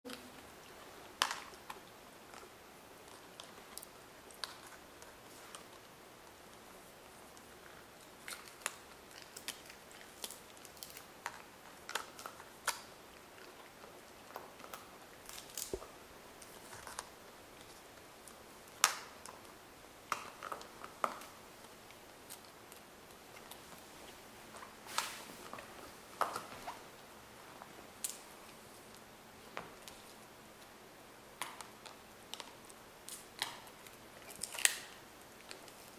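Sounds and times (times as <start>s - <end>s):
wolves chewing and crunching: 0.1s - 29.0s, 31.4s - 35.9s
sharp cracks and snaps: 1.1s - 6.6s, 7.3s - 23.8s, 28.0s - 29.0s, 31.3s - 35.9s.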